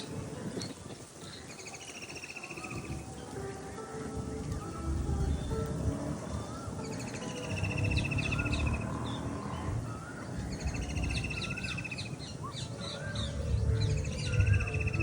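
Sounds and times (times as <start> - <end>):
bird pulsed trill: 0.0 - 15.0
birds chirping and whistling: 0.0 - 15.0
low background rumble: 4.1 - 15.0.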